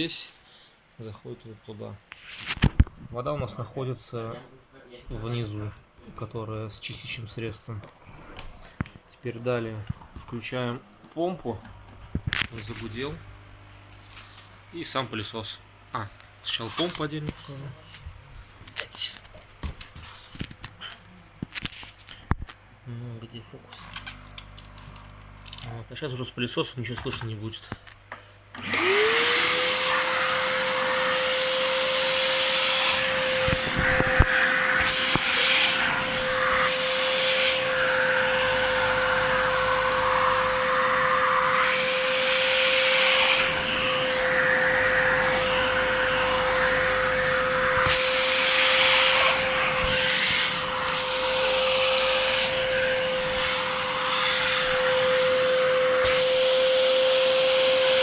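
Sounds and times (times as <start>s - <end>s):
vacuum cleaner motor whine: 28.5s - 58.0s
suction noise rush: 28.6s - 58.0s.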